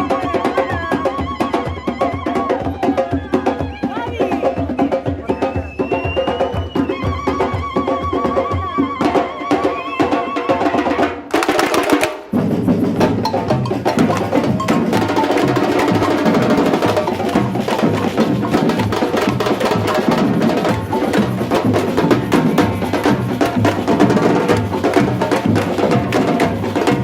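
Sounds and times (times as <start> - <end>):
samba percussion drumming: 0.0 - 27.0
melodic music: 13.0 - 16.2
wood-block clicks: 13.2 - 15.5.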